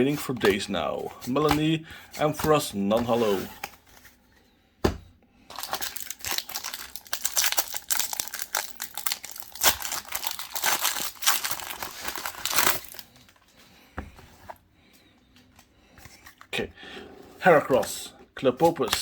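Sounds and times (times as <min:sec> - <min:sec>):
foil wrapper crinkling: 0:05.5 - 0:13.5.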